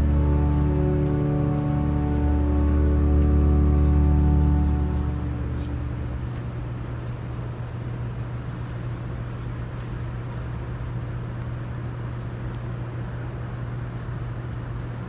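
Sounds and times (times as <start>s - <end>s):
music: 0.0s - 7.0s
faint rumbling hiss: 0.0s - 15.0s
steady low hum: 0.0s - 15.0s.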